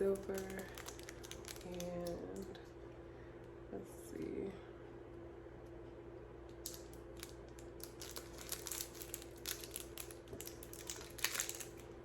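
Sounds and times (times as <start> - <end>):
plastic packaging crinkling: 0.0 - 2.7, 6.5 - 12.0.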